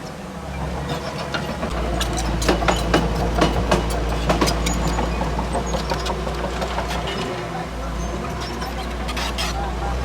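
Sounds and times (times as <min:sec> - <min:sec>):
bulldozer engine droning: 0:00.0 - 0:10.0
metallic clanks and clicks: 0:01.3 - 0:07.3.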